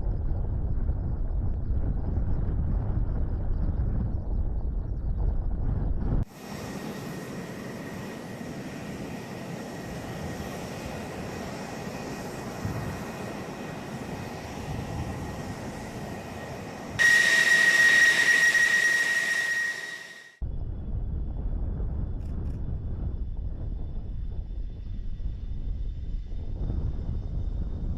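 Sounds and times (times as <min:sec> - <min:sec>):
aircraft engine running: 0:00.0 - 0:20.6
high turbine whine: 0:04.9 - 0:22.0.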